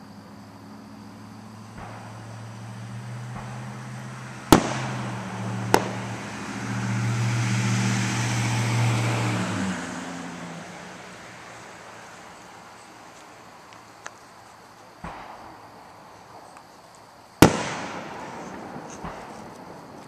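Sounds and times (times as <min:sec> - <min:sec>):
firework bangs: 0:01.7 - 0:09.2, 0:15.0 - 0:16.5, 0:17.4 - 0:20.0.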